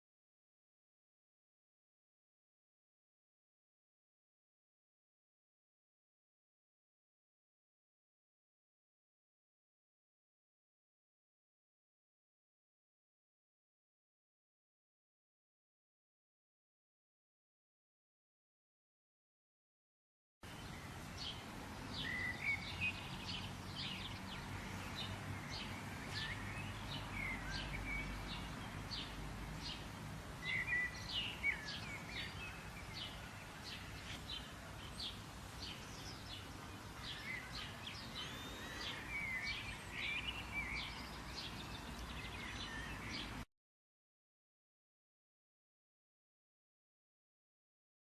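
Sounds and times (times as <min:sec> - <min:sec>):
birds chirping: 0:20.5 - 0:43.4.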